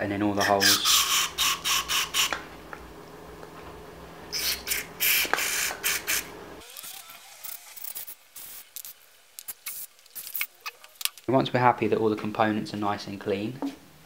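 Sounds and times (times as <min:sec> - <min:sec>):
aerosol spray hissing bursts: 0:00.6 - 0:02.4, 0:04.4 - 0:06.3, 0:08.0 - 0:10.3.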